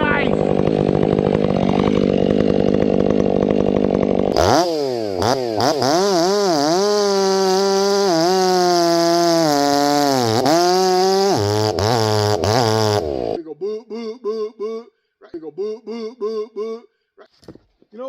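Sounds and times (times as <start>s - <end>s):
chainsaw revving: 0.0s - 13.4s.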